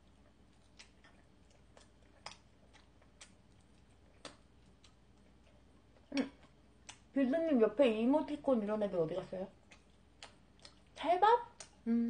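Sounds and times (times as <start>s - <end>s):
mouth clicks while chewing: 0.0s - 7.1s, 9.6s - 11.9s.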